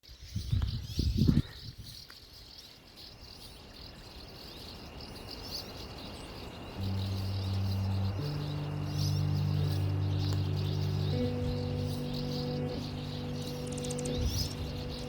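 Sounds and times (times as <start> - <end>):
small birds chirping: 0.0 - 15.0
low background music: 6.8 - 15.0
steady thin high tone: 6.8 - 15.0.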